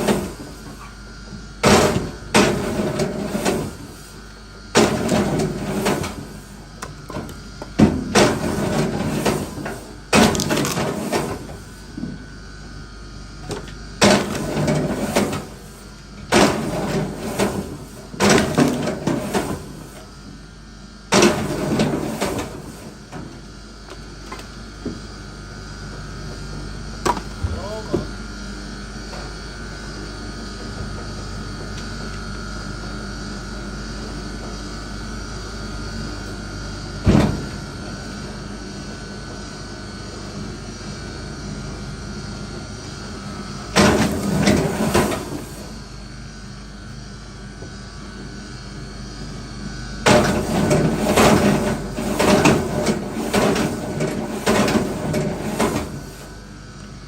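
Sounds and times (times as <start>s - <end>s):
steady hum: 0.0s - 38.9s.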